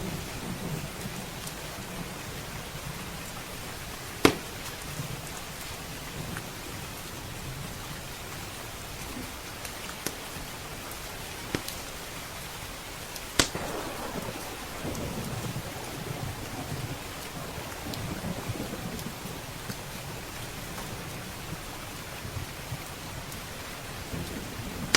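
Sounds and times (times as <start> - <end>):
steady rain: 0.0 - 24.9
wood fire crackling: 13.1 - 24.9
thunder rumbling: 13.5 - 24.9.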